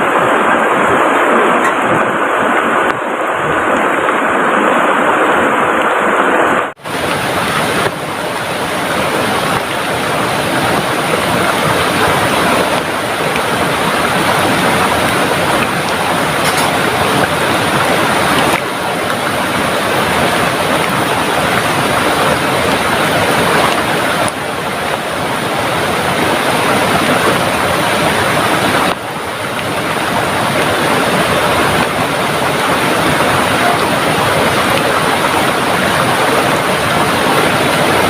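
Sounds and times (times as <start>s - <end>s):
heavy rain pouring: 0.0s - 38.0s
rushing river: 0.0s - 38.0s.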